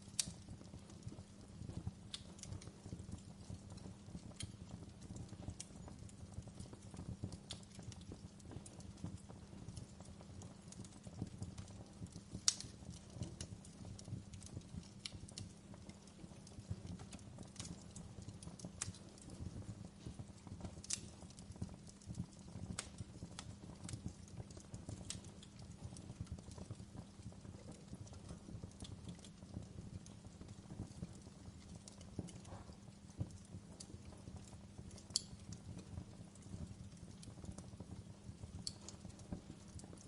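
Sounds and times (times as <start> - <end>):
campfire crackling and popping: 0.0 - 40.0
low rumble of flames: 0.0 - 40.0.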